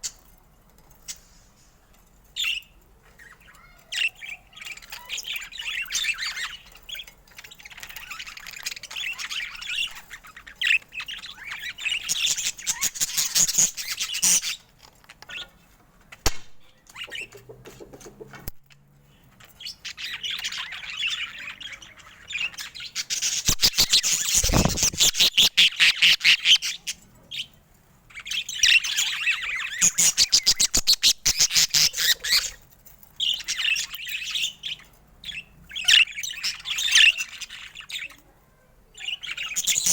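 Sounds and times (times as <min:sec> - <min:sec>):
budgerigars chattering and warbling: 0:17.0 - 0:18.3, 0:19.6 - 0:27.5, 0:28.2 - 0:32.6, 0:33.2 - 0:38.1.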